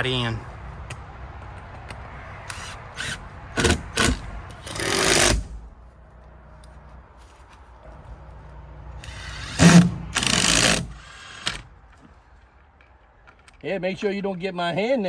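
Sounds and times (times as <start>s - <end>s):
power drill driving screw into wood: 2.5s - 5.6s, 9.0s - 11.7s.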